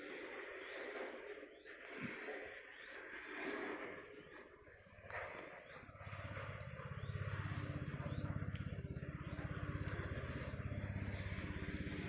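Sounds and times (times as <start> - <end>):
engine throbbing: 4.9 - 12.0.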